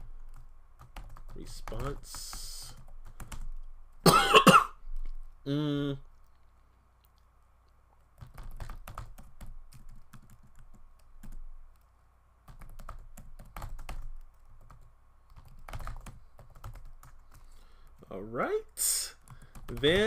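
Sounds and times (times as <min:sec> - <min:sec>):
typing on computer keyboard: 0:00.2 - 0:03.6, 0:08.2 - 0:11.9, 0:12.5 - 0:17.5, 0:19.2 - 0:20.0.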